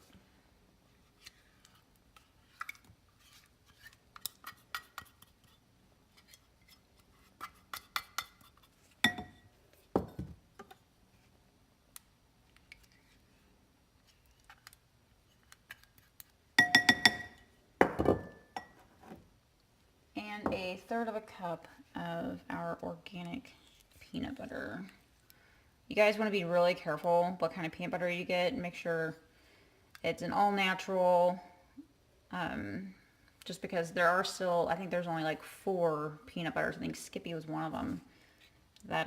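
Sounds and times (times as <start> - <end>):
spoon clinking against bowl: 9.0 - 9.4, 16.6 - 17.4.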